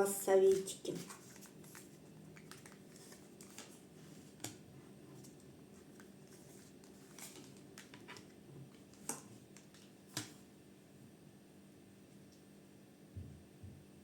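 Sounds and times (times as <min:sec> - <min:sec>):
faint steady hum: 0:00.0 - 0:14.0
cards rustling and clicking: 0:00.4 - 0:04.6, 0:05.2 - 0:10.4
cards tapping: 0:00.5 - 0:04.6.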